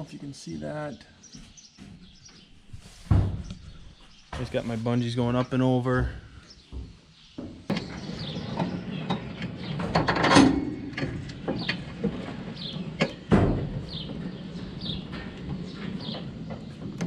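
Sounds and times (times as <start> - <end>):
birds chirping: 0.0 - 17.0
baler mechanism clanking: 7.7 - 17.0.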